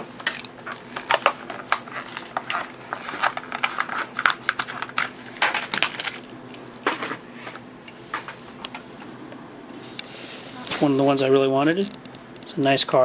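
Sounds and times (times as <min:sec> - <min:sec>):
plastic blister packaging crackling: 0:00.0 - 0:08.4.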